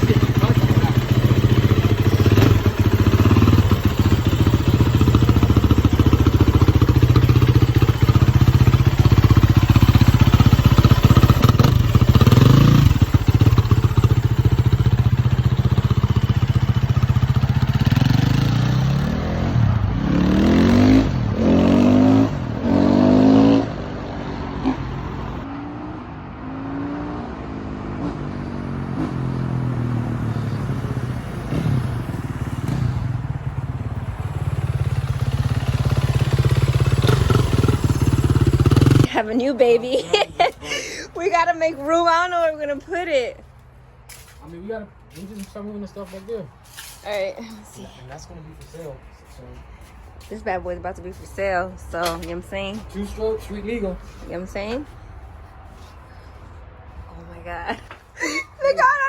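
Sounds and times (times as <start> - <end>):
dirt bike engine revving: 0.0 - 25.9, 34.3 - 39.2.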